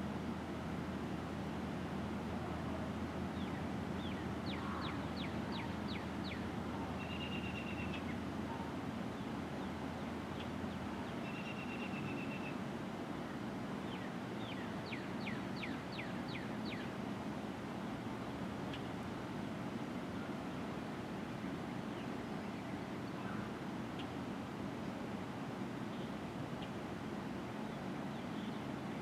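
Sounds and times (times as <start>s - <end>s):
songbirds whistling: 3.4s - 8.2s, 11.1s - 12.6s.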